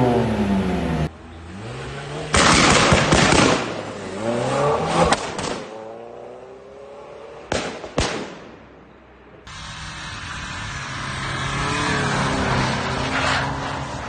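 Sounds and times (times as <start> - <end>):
car engine revving: 0.0 - 7.5, 9.5 - 14.0
exhaust backfire pops: 5.0 - 5.8.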